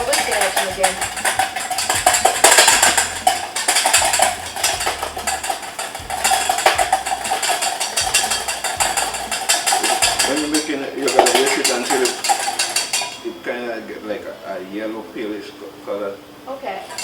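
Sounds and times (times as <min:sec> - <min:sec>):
whisk clicking against bowl: 0:00.0 - 0:13.2.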